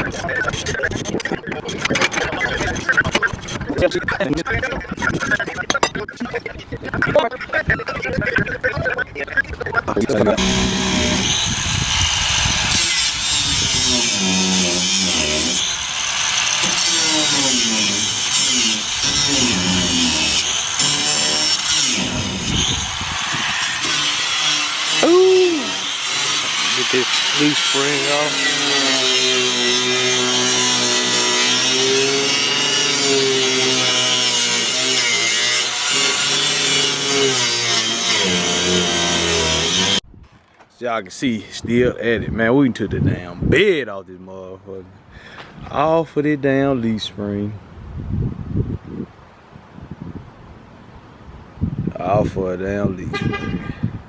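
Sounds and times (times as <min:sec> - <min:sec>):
power tool cutting steel: 0:00.0 - 0:03.9, 0:05.1 - 0:06.0, 0:10.2 - 0:40.0.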